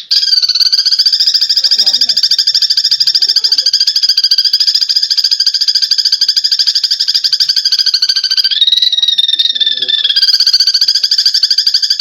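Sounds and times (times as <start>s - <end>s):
sparrow chattering chirps: 0.0s - 12.0s.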